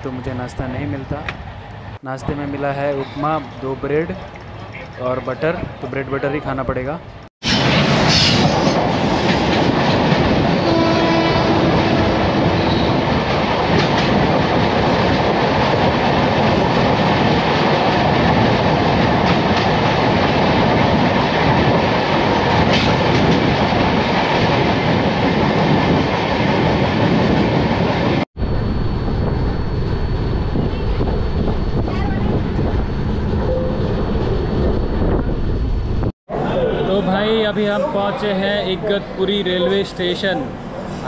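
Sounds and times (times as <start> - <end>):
passing train coaches: 0.0 - 41.0
train wheels and wind rushing: 0.0 - 41.0
train horn: 10.6 - 12.9.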